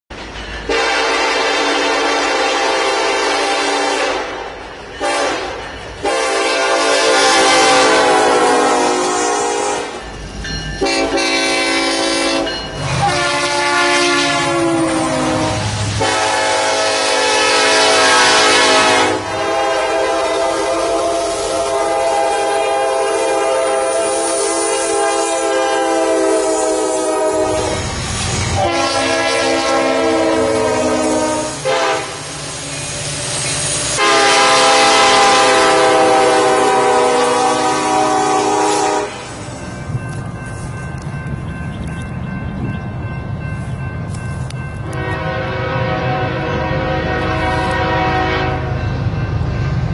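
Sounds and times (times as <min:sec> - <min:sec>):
train rumble: 0:00.1 - 0:49.9
locomotive air horn blasts: 0:00.7 - 0:04.4, 0:05.0 - 0:10.0, 0:10.8 - 0:27.8, 0:28.5 - 0:32.3, 0:33.9 - 0:39.4, 0:44.8 - 0:48.8.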